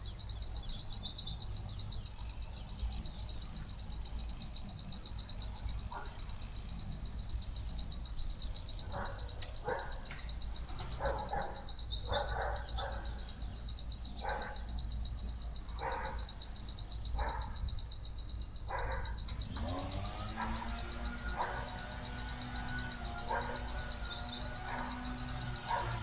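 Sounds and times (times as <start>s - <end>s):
dog barking: 5.9s - 6.2s, 8.9s - 10.1s, 10.9s - 13.2s, 14.2s - 14.7s, 15.8s - 16.3s, 17.2s - 17.6s, 18.7s - 19.2s, 20.3s - 21.9s, 23.2s - 25.0s, 25.6s - 26.0s.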